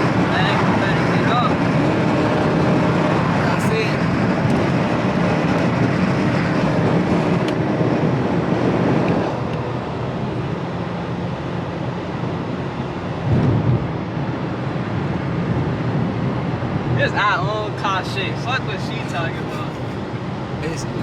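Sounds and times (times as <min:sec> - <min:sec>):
car interior road rumble: 0:00.0 - 0:09.4, 0:18.0 - 0:21.0.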